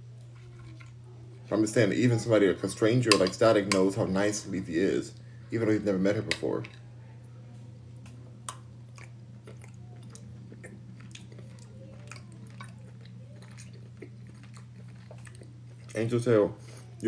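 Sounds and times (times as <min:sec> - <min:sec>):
steady low hum: 0:00.0 - 0:17.0
person chewing food: 0:00.1 - 0:01.5, 0:08.0 - 0:16.0.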